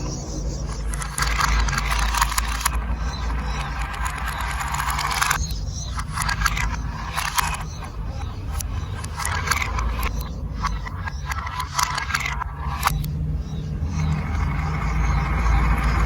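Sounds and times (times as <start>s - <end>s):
marbles rolling on plastic track: 0.6s - 13.1s.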